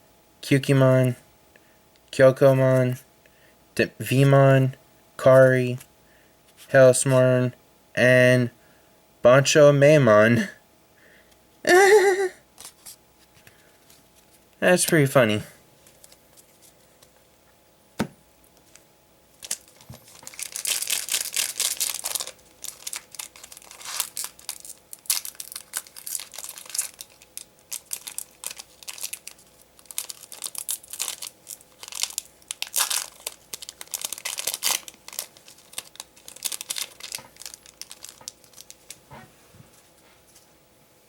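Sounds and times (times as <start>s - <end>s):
foil wrapper crinkling and tearing: 19.4s - 39.0s.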